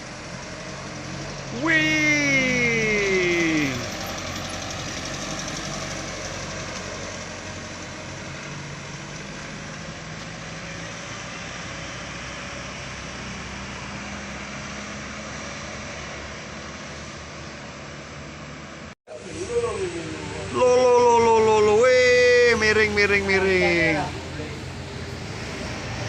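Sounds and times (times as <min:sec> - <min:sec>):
truck engine running: 0:00.0 - 0:14.5, 0:21.4 - 0:26.0
road noise hiss: 0:00.0 - 0:26.0.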